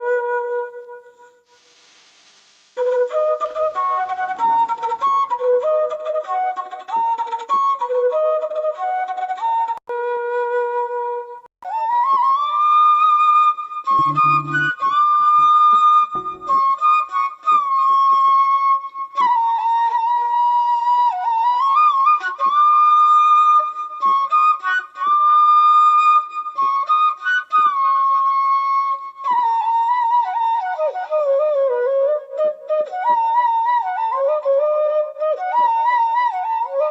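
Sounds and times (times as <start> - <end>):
slow flute melody: 0.0 - 1.4, 2.8 - 36.9
faint hiss: 1.3 - 4.5, 14.0 - 14.7.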